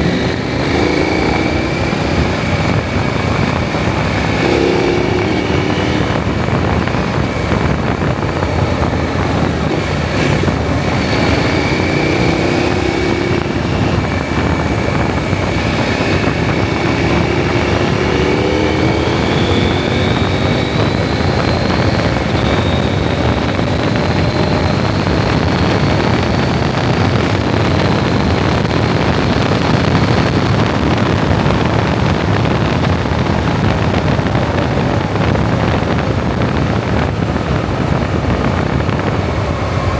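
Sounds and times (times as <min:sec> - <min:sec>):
motorcycle engine revving: 0:00.0 - 0:39.9
wind noise on microphone: 0:00.0 - 0:39.9.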